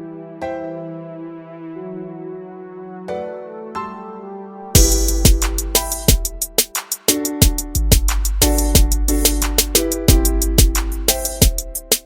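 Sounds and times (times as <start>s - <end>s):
hip hop music with deep bass: 4.8s - 12.0s.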